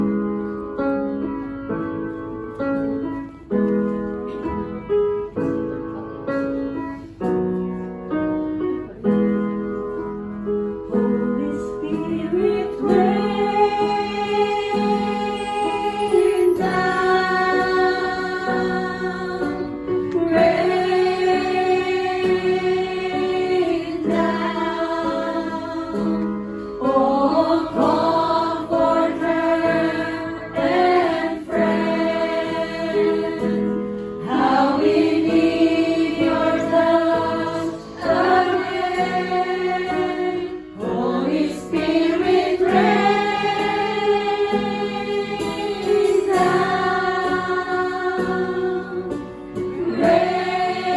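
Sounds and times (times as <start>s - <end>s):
instrumental accompaniment: 0.0s - 50.9s
choir singing worship song: 11.4s - 50.9s.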